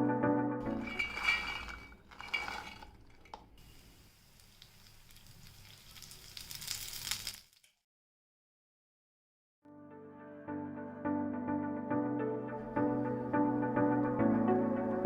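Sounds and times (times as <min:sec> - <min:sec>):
food sizzling in oil: 0:03.6 - 0:07.7.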